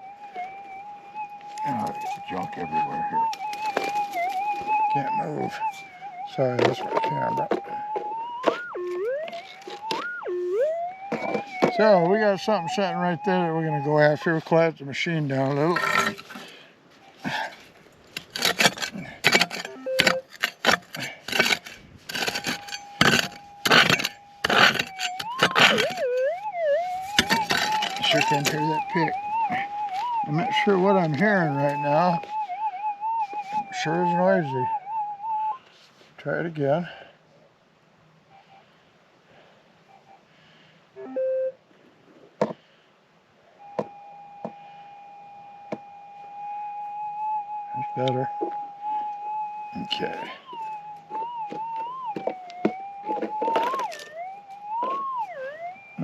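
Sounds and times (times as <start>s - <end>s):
metal detector tone: 1.6s - 14.6s, 15.2s - 16.4s, 18.4s - 35.6s, 41.0s - 41.6s, 43.7s - 56.0s
pick striking stony ground: 3.3s - 5.6s, 6.4s - 12.8s, 15.4s - 16.5s, 17.2s - 32.5s, 50.0s - 54.2s.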